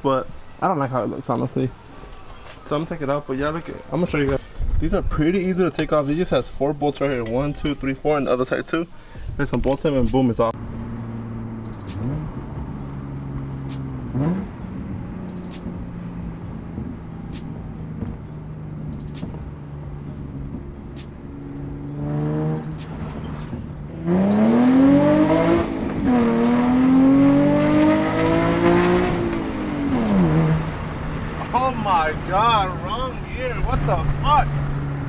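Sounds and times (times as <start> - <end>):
car engine idling and revving: 9.6 - 35.0.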